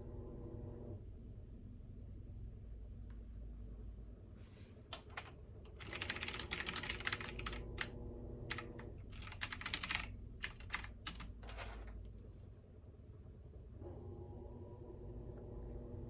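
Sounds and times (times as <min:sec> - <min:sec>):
low steady hum: 0:00.0 - 0:16.0
typing on computer keyboard: 0:05.0 - 0:07.9, 0:08.5 - 0:11.8.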